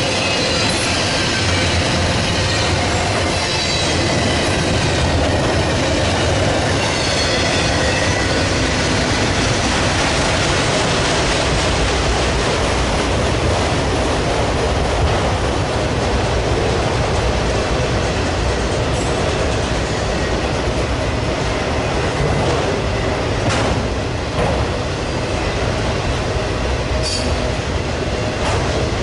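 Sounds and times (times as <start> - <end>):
freight train rumbling past: 0.0 - 29.0.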